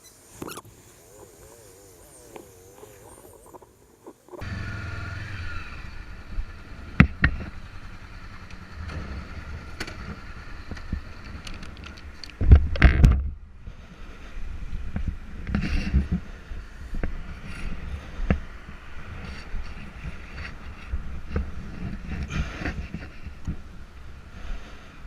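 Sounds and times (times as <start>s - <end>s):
vehicle engine rumble: 0.0s - 25.0s
wind on microphone: 9.1s - 25.0s.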